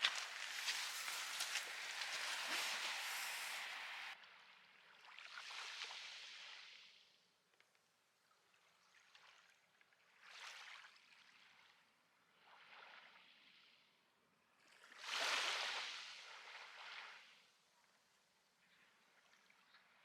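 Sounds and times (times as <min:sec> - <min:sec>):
small waves washing onto shore: 0:00.0 - 0:04.2.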